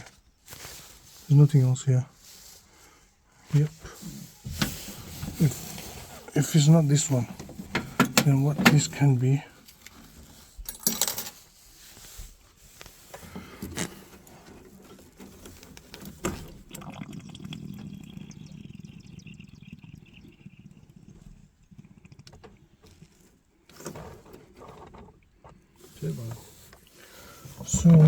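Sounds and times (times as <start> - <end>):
clicks and knocks of fittings: 7.3 - 9.0.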